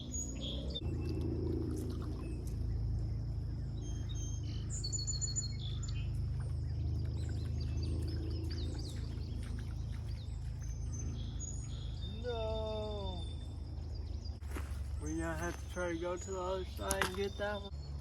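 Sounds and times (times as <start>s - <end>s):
birds chirping and calling: 0.0s - 18.0s
steady low rumble: 0.0s - 18.0s.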